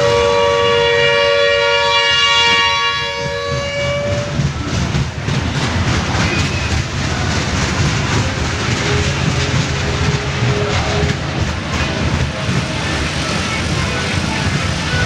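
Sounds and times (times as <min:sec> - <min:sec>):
train horn chord: 0:00.0 - 0:04.4
train rumble and clatter: 0:00.0 - 0:15.0.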